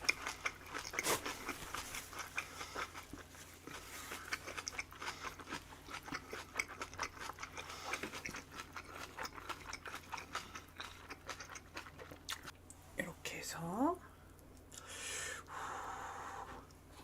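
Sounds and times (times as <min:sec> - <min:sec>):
crunchy chewing: 0:00.0 - 0:12.5.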